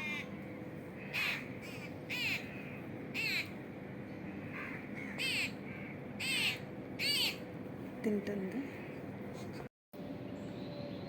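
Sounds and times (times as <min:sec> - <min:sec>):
crows cawing: 0:00.0 - 0:00.4, 0:01.0 - 0:03.6, 0:04.4 - 0:07.4
faint steady hum: 0:00.0 - 0:11.0.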